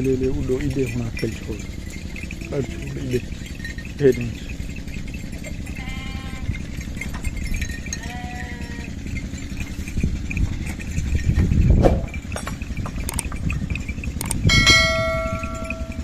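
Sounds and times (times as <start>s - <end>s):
steady low rumble: 0.0s - 16.0s
lamb bleating: 2.4s - 3.3s, 5.7s - 6.7s, 8.0s - 9.0s.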